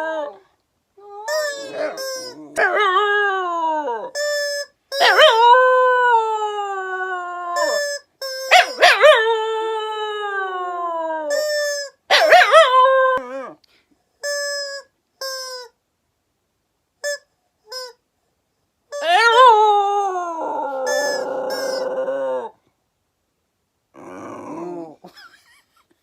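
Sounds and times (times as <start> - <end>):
dog howling: 1.0 - 4.2, 5.0 - 7.9, 8.5 - 11.4, 19.0 - 22.6, 24.0 - 25.0
toy crying: 1.0 - 9.8, 11.1 - 13.4, 18.9 - 22.5.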